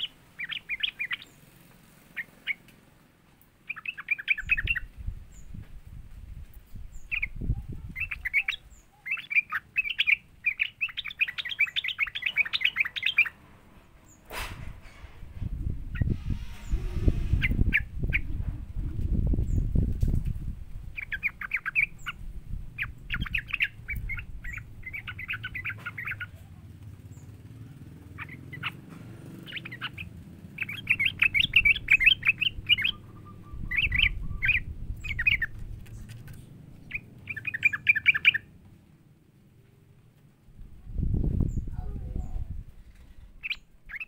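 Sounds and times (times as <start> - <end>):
bulbul chattering chirps: 0.0 - 2.7, 3.6 - 5.6, 6.9 - 13.4, 20.9 - 38.5
faint low rumble: 10.6 - 43.9.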